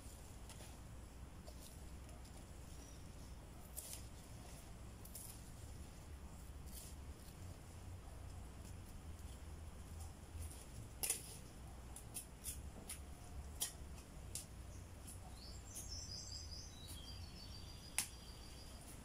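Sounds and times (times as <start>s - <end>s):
low steady rumble: 0.0s - 19.0s
small bird twittering: 14.7s - 18.8s.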